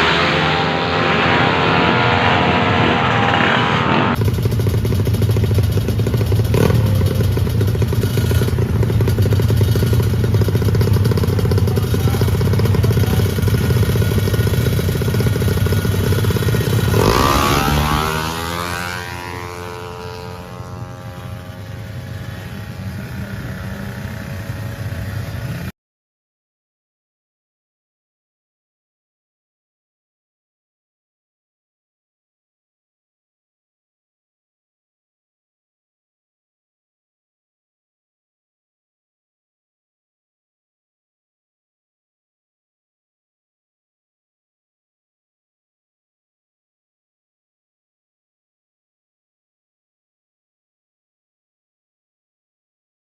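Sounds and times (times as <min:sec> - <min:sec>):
scooter engine revving: 0:00.0 - 0:25.7.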